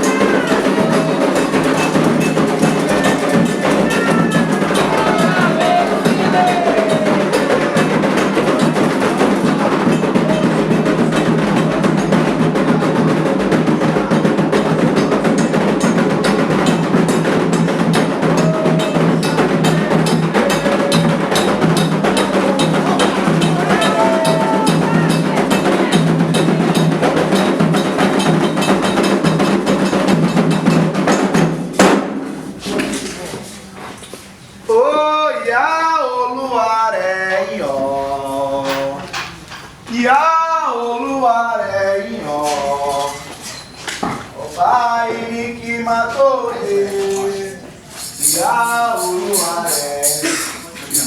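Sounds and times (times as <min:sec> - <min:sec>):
voices singing: 0:00.0 - 0:30.8, 0:34.4 - 0:51.0
drums playing fast rhythm: 0:00.0 - 0:33.2, 0:46.7 - 0:51.0.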